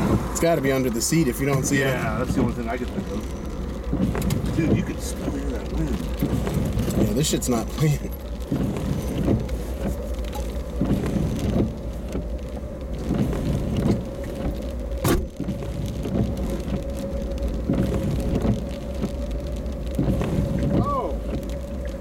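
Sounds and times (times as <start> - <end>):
rain on car body: 0.0 - 22.0
wind gusting against a car: 0.0 - 22.0.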